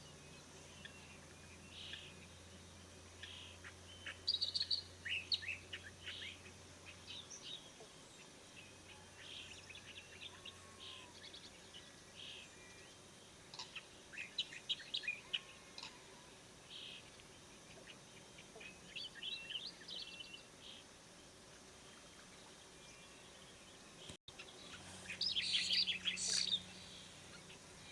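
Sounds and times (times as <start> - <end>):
faint background hiss: 0.0 - 27.9
bird chicks chirping: 24.3 - 27.6.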